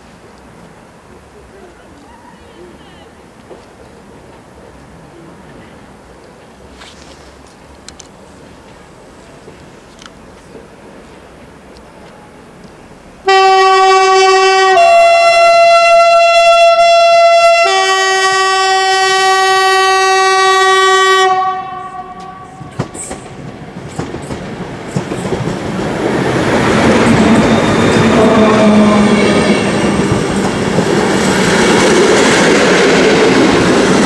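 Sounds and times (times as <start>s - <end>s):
train wheels on rails: 0.0s - 14.7s, 19.0s - 34.0s
locomotive horn: 13.2s - 22.8s, 28.0s - 29.7s.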